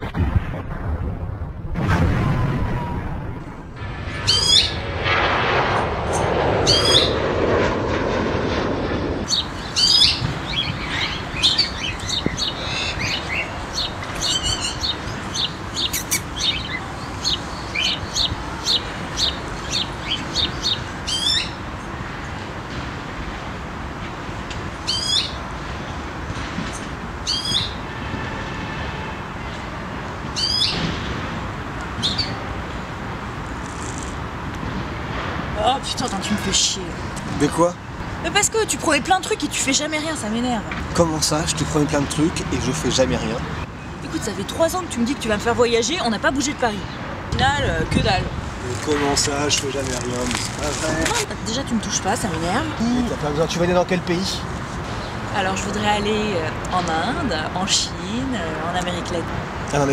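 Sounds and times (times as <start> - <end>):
loud rushing noise: 0.0 - 27.2, 47.0 - 51.4
steady low background rush: 0.0 - 28.0
songbirds chirping: 9.3 - 21.9.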